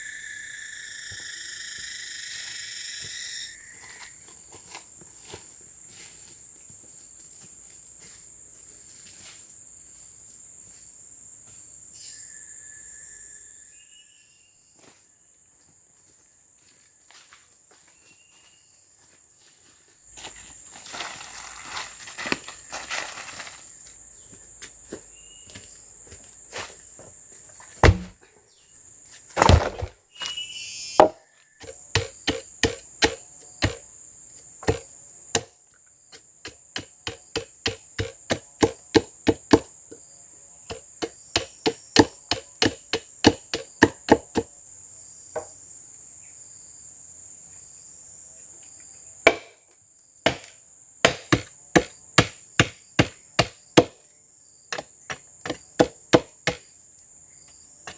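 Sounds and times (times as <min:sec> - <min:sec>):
high-pitched insect drone: 0:00.0 - 0:10.1, 0:11.9 - 0:14.9, 0:30.2 - 0:35.3
heavy thumps: 0:27.7 - 0:28.2, 0:29.4 - 0:30.0
wood being chopped: 0:27.8 - 0:28.2, 0:29.4 - 0:30.0, 0:31.0 - 0:33.8, 0:34.6 - 0:35.5, 0:36.1 - 0:39.7, 0:40.7 - 0:44.5, 0:49.2 - 0:49.6, 0:50.2 - 0:54.0, 0:54.7 - 0:56.7.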